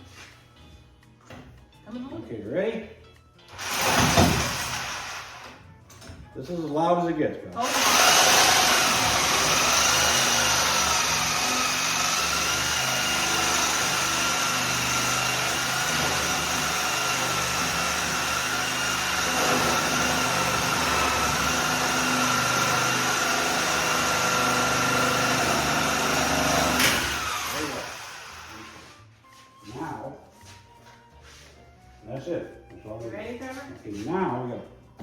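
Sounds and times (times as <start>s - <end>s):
power cutting tool whining: 7.6s - 28.9s.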